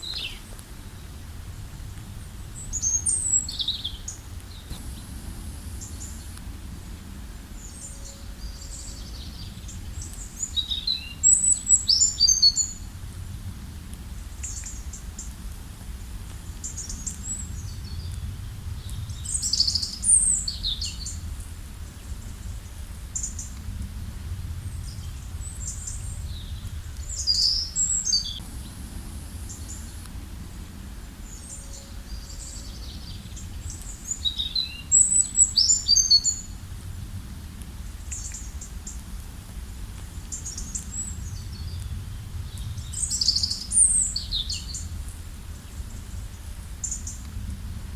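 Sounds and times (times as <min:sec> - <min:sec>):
songbirds chirping: 0:00.0 - 0:12.9, 0:24.5 - 0:36.7, 0:37.8 - 0:47.3
low background rumble: 0:00.0 - 0:47.9.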